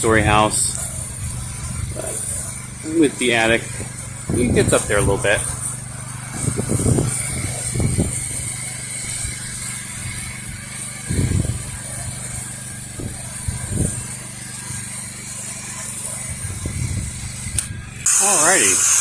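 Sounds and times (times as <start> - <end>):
pressure washer engine running: 0.0 - 19.0
thin high whine: 0.0 - 19.0.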